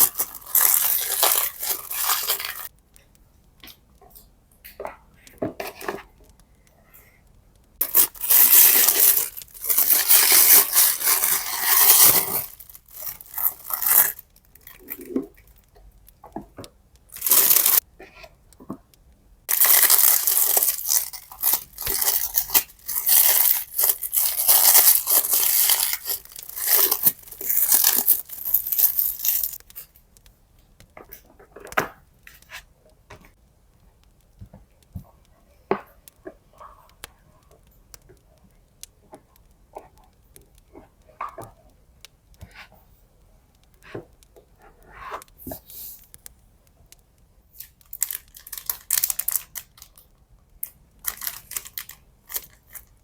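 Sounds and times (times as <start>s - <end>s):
paper tearing and crinkling: 0.0s - 2.7s, 7.8s - 15.1s, 17.1s - 17.8s, 19.5s - 29.7s, 47.6s - 49.8s, 51.0s - 52.9s.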